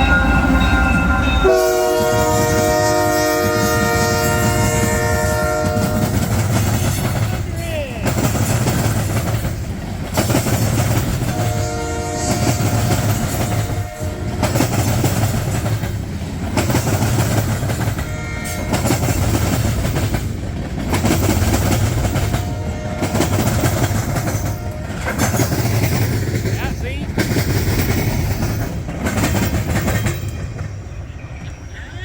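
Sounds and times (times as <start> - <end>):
locomotive horn blasts: 0.0 - 6.2, 11.3 - 14.6, 17.9 - 19.2, 22.3 - 23.5, 24.3 - 25.2
wheels clacking over rail joints: 0.0 - 31.8
freight train rolling by: 0.0 - 32.0.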